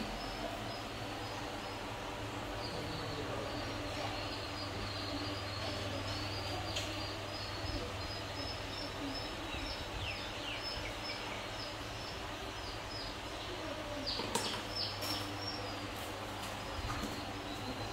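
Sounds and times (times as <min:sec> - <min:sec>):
small birds chirping: 0:00.0 - 0:17.9.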